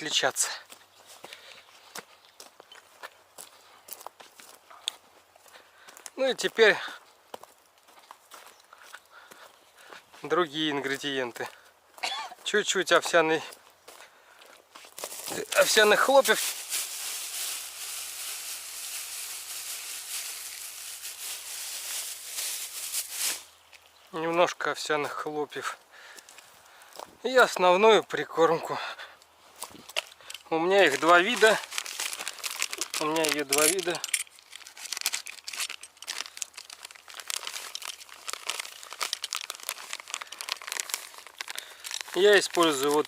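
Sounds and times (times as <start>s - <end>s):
oat flakes rattling from packet: 15.2s - 23.4s, 30.3s - 43.0s.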